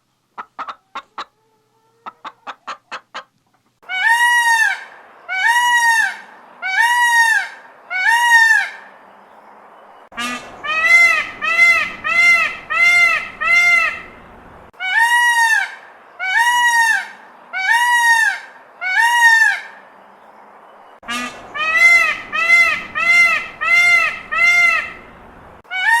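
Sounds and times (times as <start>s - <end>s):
goose honking: 10.2s - 14.2s, 21.0s - 26.0s.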